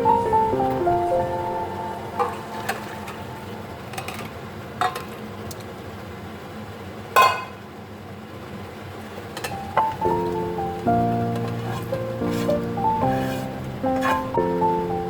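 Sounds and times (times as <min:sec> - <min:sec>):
steady low hiss: 0:00.0 - 0:04.6, 0:09.4 - 0:15.0
utensils clinking against dishes: 0:11.3 - 0:14.4.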